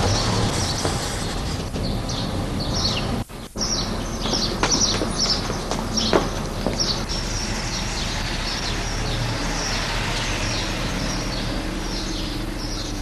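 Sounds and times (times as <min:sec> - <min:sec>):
small birds chirping: 0:00.0 - 0:13.0
steady background hiss: 0:00.0 - 0:13.0
sharp knocks: 0:04.2 - 0:06.9.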